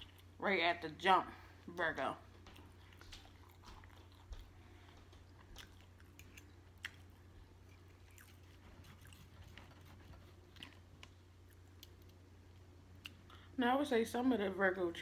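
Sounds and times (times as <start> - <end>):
chewing and mouth smacks: 0.0 - 0.4, 2.3 - 13.5
low steady hum: 0.0 - 15.0.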